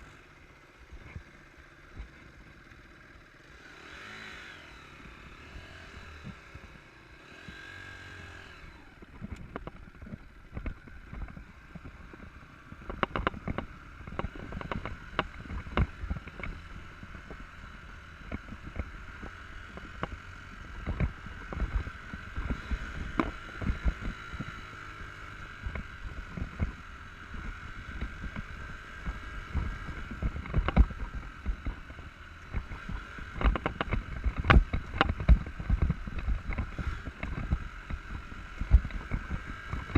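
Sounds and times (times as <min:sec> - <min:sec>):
dirt bike engine running: 0:00.0 - 0:39.9
knocks and thumps from bumps: 0:09.2 - 0:16.6, 0:32.5 - 0:39.9.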